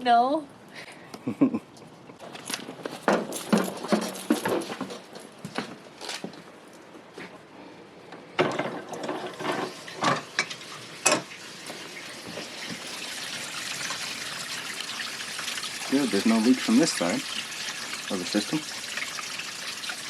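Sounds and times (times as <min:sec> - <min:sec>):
sharp knocks and clatters: 0:02.2 - 0:05.3
water running through pipes: 0:08.6 - 0:20.0.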